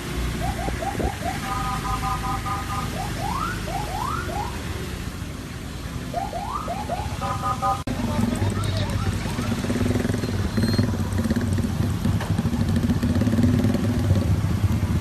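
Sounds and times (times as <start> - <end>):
car alarm siren: 0.3 - 4.7, 6.1 - 7.9.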